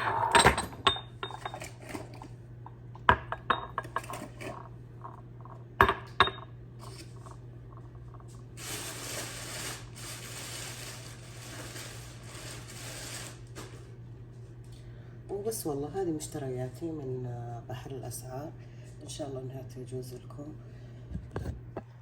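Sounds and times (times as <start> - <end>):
cups clinking: 0.0 - 8.4.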